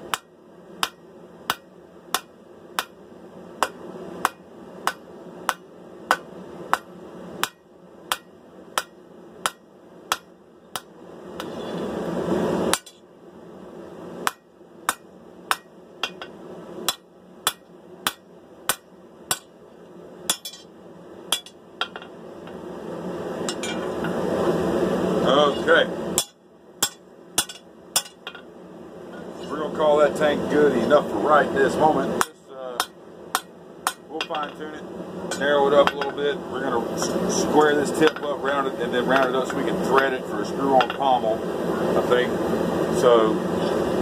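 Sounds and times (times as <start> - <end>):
hammer striking steel on anvil: 0.1 - 3.0, 3.6 - 11.8, 12.7 - 13.0, 14.2 - 19.6, 20.3 - 20.7, 21.3 - 22.1, 23.5 - 23.9, 26.2 - 28.4, 32.2 - 34.6, 35.3 - 36.2, 38.0 - 38.3.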